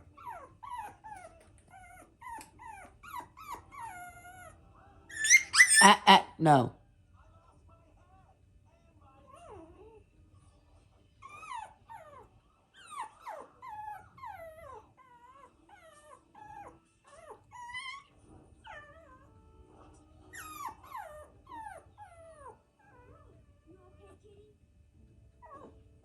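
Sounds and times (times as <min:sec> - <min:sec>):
puppy whining: 0:00.0 - 0:06.6, 0:09.2 - 0:10.2, 0:11.2 - 0:24.5, 0:25.3 - 0:26.0.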